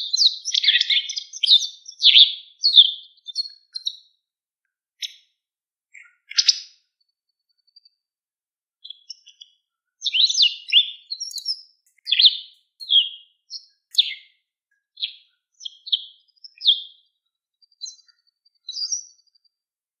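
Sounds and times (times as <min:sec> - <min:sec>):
bird chirping: 0:00.0 - 0:04.1, 0:05.0 - 0:05.3, 0:05.9 - 0:06.8, 0:08.8 - 0:14.4, 0:15.0 - 0:19.6.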